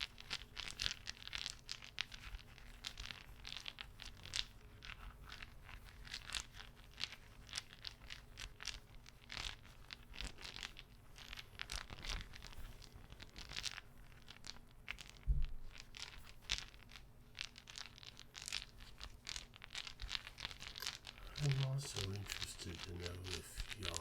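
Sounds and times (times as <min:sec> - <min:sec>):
low thump: 0:15.3 - 0:15.6.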